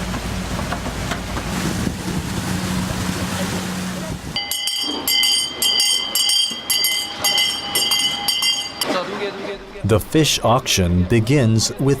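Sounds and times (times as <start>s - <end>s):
bell rung rapidly: 4.4s - 8.9s.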